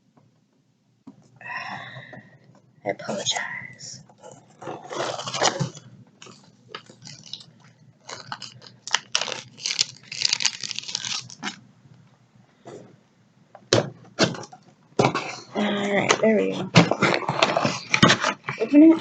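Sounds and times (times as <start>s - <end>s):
cardboard and tape tearing: 4.6s - 11.6s.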